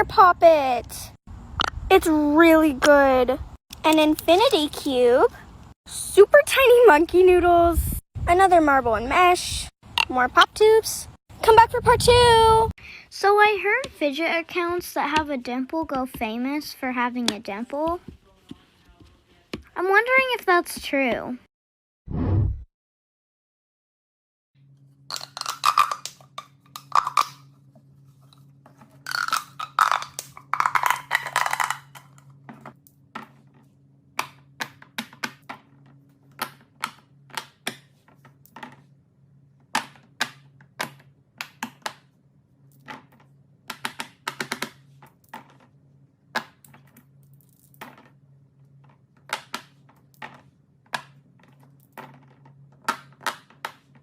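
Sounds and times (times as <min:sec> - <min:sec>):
clicks of small hard objects: 0:25.1 - 0:27.5, 0:29.0 - 0:32.8.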